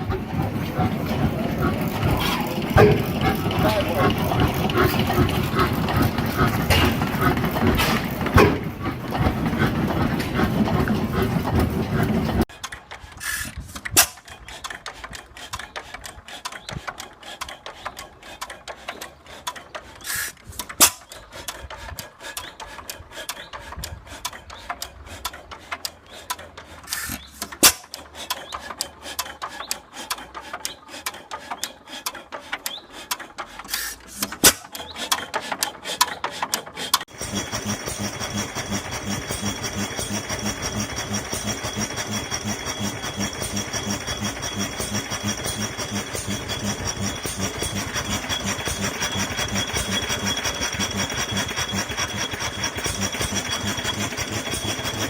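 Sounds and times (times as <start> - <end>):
engine running with even beat: 0.0 - 12.5, 37.1 - 55.0
old engine clattering: 0.0 - 55.0.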